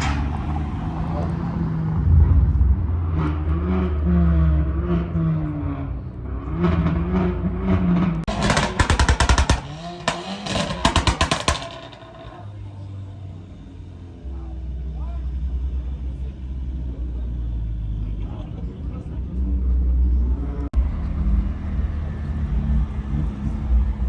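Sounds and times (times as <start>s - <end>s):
car engine revving: 0.0s - 24.0s
exhaust pops and bangs: 7.7s - 12.4s.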